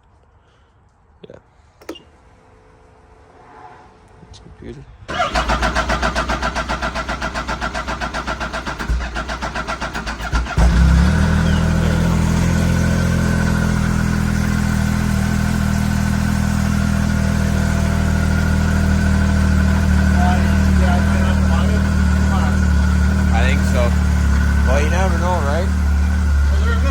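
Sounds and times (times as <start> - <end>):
snowmobile starter cranking: 5.1 - 11.2
snowmobile engine idling: 5.1 - 26.9.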